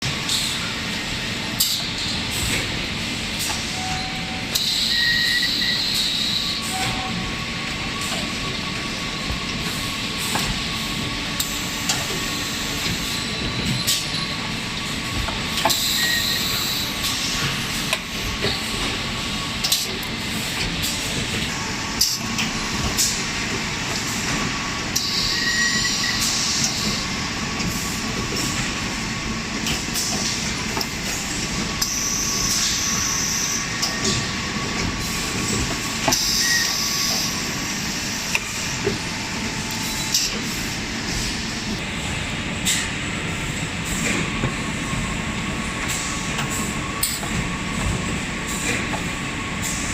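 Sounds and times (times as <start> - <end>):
hydraulic pump hum with whine: 0.0 - 49.9.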